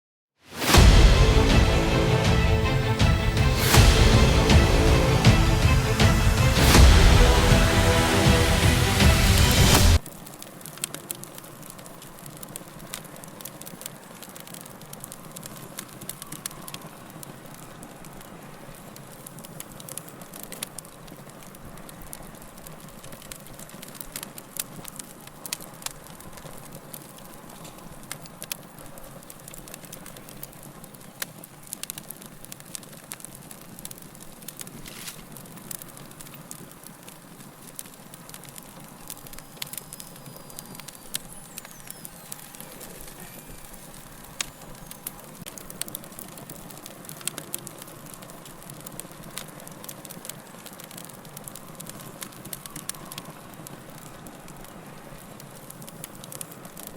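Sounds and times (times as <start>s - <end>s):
log fire crackling and popping: 0.5s - 56.9s
burst of music: 0.6s - 10.0s.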